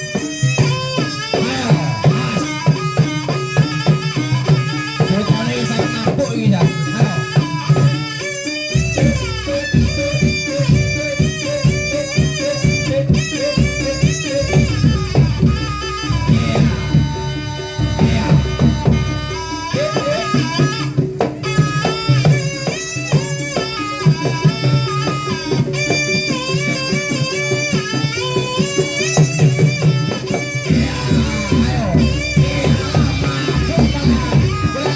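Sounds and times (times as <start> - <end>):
hand drum strokes: 0.0 - 34.9
sliding melody instrument: 0.0 - 34.9.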